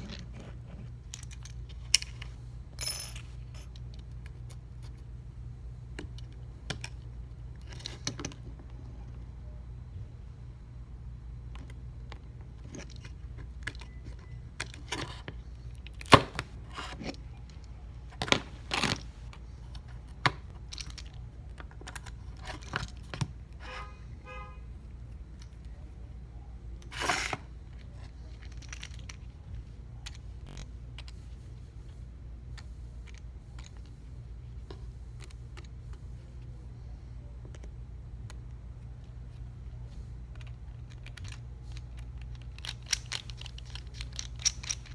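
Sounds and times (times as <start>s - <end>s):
steady low hum: 0.0s - 44.9s
metal tools clicking and tapping: 40.4s - 44.9s.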